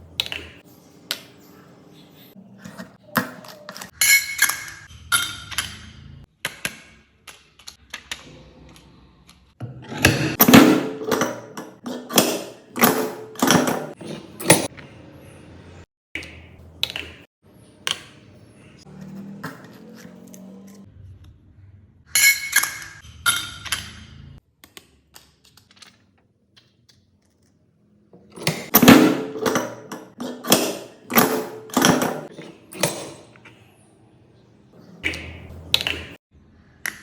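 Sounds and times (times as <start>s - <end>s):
press thunking: 10.1s - 14.7s, 28.2s - 33.3s.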